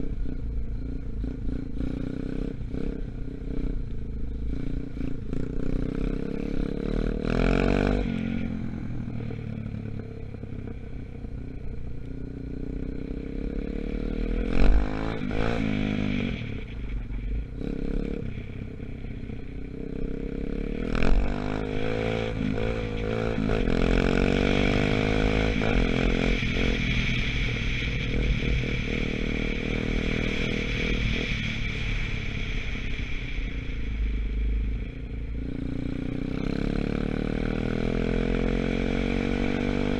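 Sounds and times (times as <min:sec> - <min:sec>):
dirt bike engine revving: 0:04.5 - 0:08.6.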